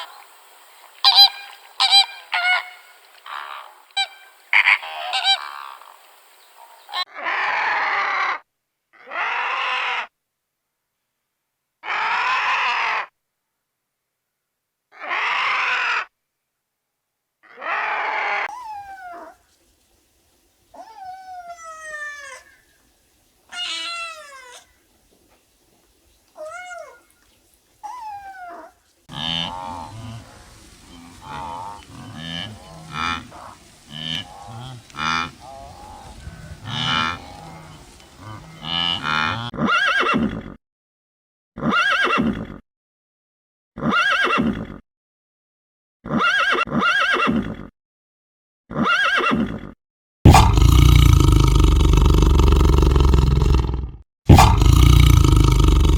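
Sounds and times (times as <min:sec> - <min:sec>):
animal calls: 0:00.0 - 0:08.4, 0:23.5 - 0:40.3, 0:50.3 - 0:53.7, 0:54.3 - 0:55.9.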